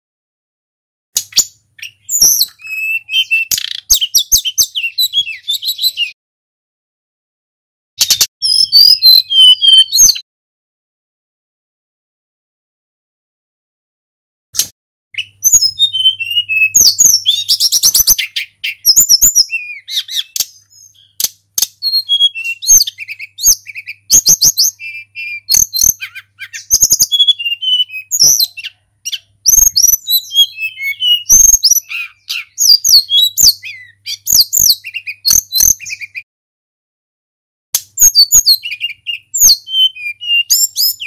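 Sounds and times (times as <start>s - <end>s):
sharp bird clicks: 1.2s - 5.9s, 8.0s - 10.2s, 14.6s - 15.7s, 16.8s - 27.1s, 28.1s - 36.2s, 37.8s - 39.6s
bird whistling and trilling: 1.2s - 6.2s, 8.0s - 10.2s, 14.6s - 36.3s, 37.8s - 41.0s.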